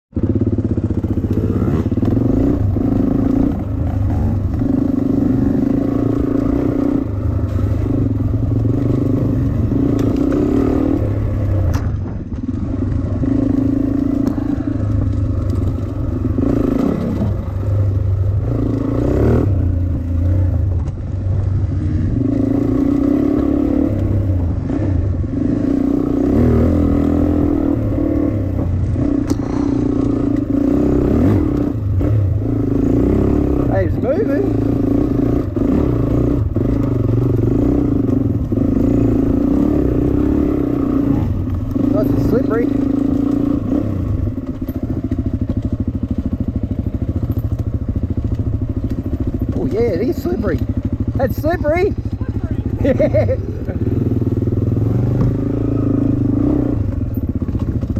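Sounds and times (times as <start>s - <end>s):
dirt bike engine revving: 0.1s - 57.9s.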